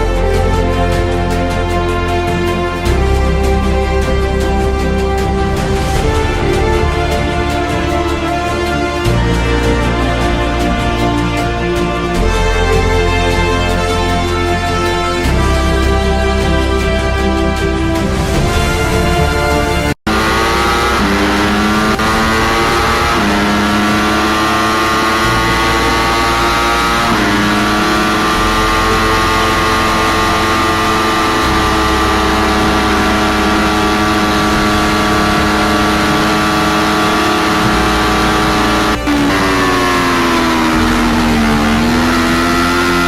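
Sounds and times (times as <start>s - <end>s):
motorcycle engine accelerating: 0.0s - 43.0s.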